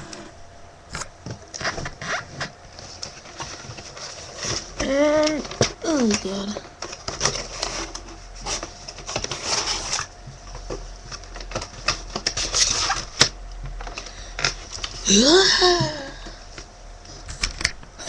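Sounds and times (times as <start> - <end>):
person exclaiming: 15.1 - 16.2.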